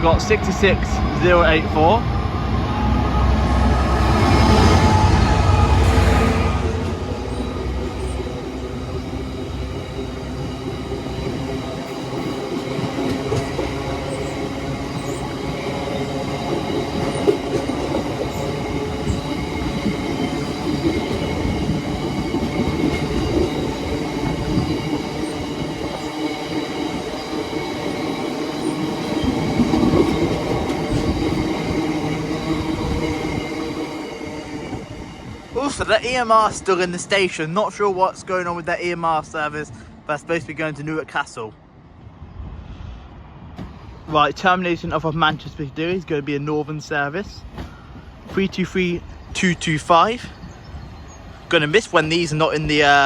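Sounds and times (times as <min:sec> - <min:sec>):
squealing train wheels: 0:00.0 - 0:37.4
diesel locomotive: 0:00.0 - 0:53.0
train wagons rumbling: 0:00.0 - 0:53.0.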